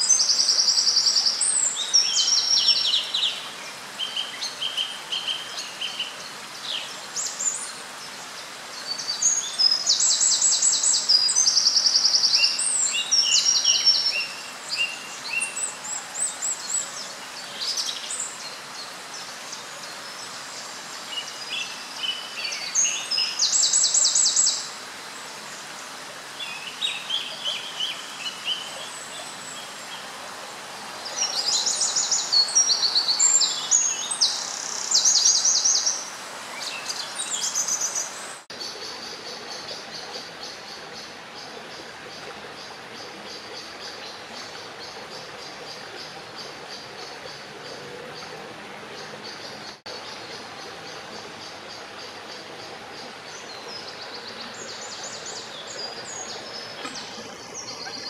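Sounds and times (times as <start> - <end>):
steady hiss: 0.0 - 58.0
small birds trilling: 42.1 - 58.0.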